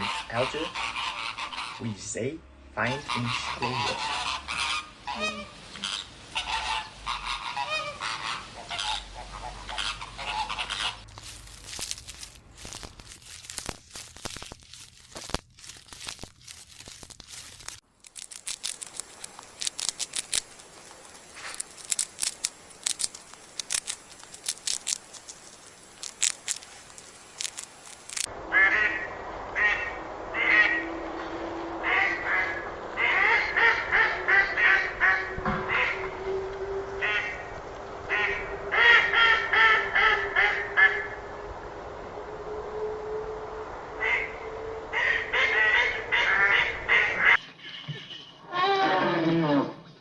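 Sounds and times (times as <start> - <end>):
flamingos honking: 0.0 - 2.2, 2.8 - 17.8, 28.1 - 41.6, 43.8 - 47.4
irregular clicks and crackles: 11.0 - 28.3.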